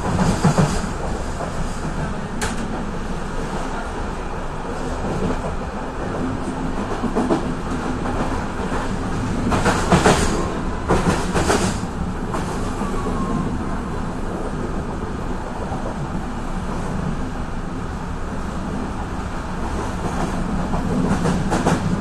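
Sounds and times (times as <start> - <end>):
train wheels clacking over joints: 6.8 - 12.6.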